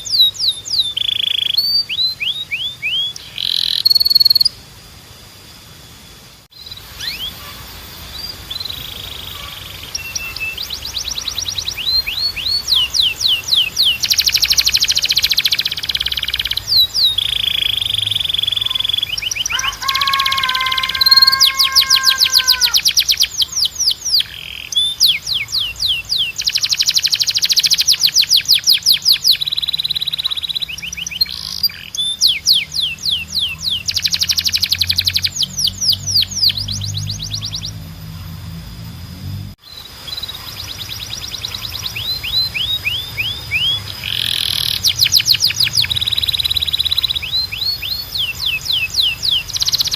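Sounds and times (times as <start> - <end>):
canary singing: 0.0 - 4.6, 6.5 - 38.5, 39.6 - 49.9.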